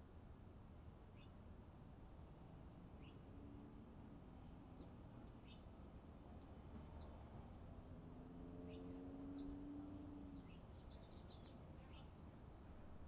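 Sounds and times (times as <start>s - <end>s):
small songbirds chirping: 4.8s - 5.7s, 8.7s - 12.2s.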